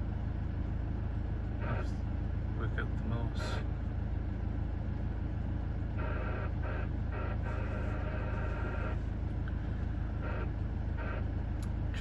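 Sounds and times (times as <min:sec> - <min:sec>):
radio hiss and hum: 0:01.5 - 0:03.7, 0:05.8 - 0:12.0.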